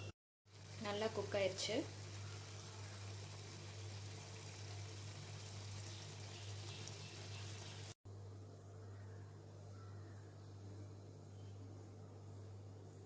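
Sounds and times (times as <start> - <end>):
gravy bubbling in a pan: 0.5 - 8.0.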